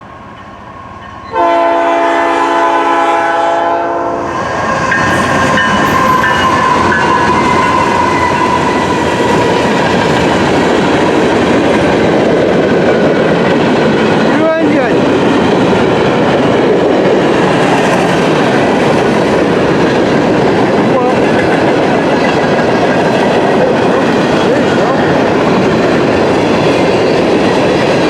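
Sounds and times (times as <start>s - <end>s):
freight train rumbling past: 0.0s - 28.0s
train horn blast: 1.3s - 4.4s, 5.0s - 9.2s.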